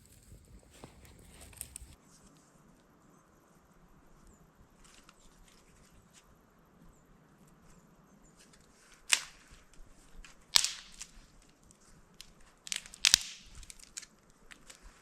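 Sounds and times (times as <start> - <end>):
wood cracking: 0.0 - 2.0, 9.1 - 15.0.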